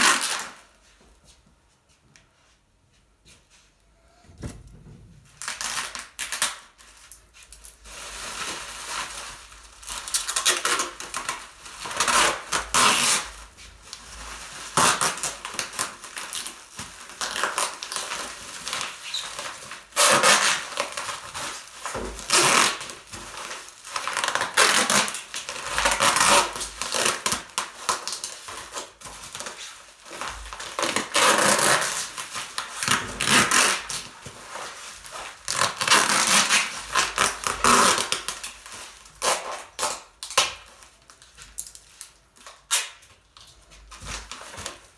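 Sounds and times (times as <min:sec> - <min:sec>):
rustling and crinkling: 0:00.0 - 0:44.9
knocks of handled objects: 0:04.2 - 0:05.4.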